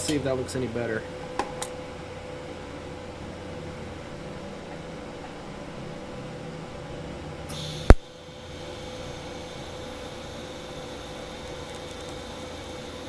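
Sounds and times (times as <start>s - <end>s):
welder arc hum and hiss: 0.0s - 13.0s
loud burst of noise: 7.5s - 13.0s.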